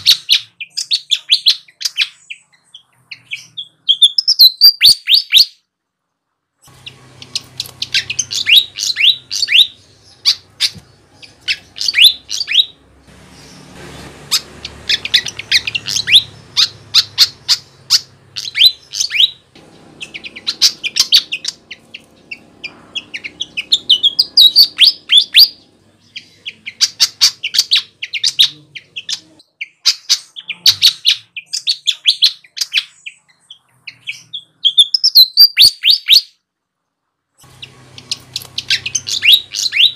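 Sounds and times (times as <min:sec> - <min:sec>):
flycatcher chattering song: 0:06.7 - 0:33.2, 0:37.4 - 0:39.9.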